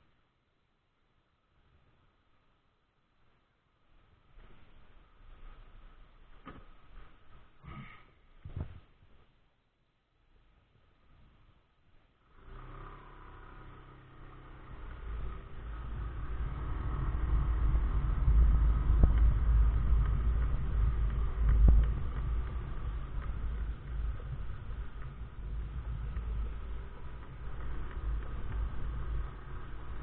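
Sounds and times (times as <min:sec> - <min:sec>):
scooter engine accelerating: 0:12.2 - 0:30.0
wind rumble on microphone: 0:13.4 - 0:30.0.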